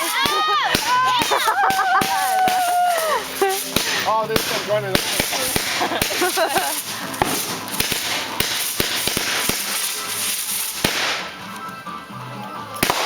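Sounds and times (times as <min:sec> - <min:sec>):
firework hiss: 0:00.0 - 0:11.4, 0:12.8 - 0:13.0
firework pops and cracks: 0:00.0 - 0:11.5, 0:12.8 - 0:13.0.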